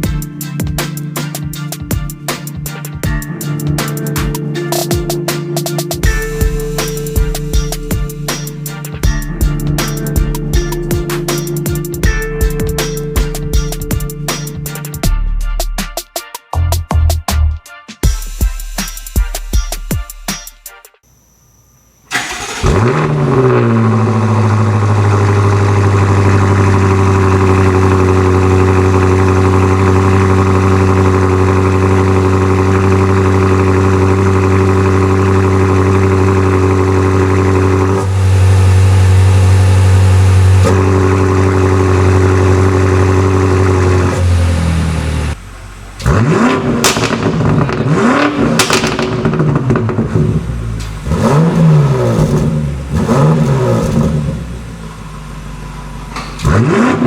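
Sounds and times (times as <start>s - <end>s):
car engine revving: 0.0s - 15.0s, 21.1s - 57.0s
car engine starting and idling: 0.0s - 15.0s, 21.1s - 57.0s.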